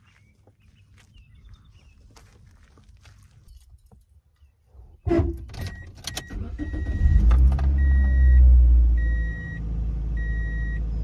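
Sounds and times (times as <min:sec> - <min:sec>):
car engine starting and idling: 0:05.1 - 0:11.0
dashboard warning chime beeping: 0:05.6 - 0:11.0.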